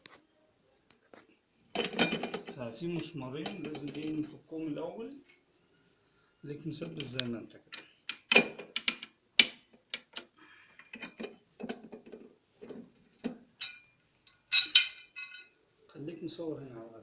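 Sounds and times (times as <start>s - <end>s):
ringing metallic clatter: 13.6s - 13.9s, 14.5s - 15.6s.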